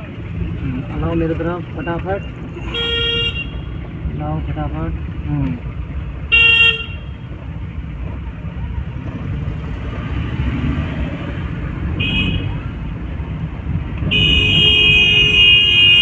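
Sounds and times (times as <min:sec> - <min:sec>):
car engine and road rumble: 0:00.0 - 0:16.0
car horn: 0:02.6 - 0:03.8, 0:06.3 - 0:07.2, 0:12.0 - 0:12.6, 0:14.1 - 0:16.0.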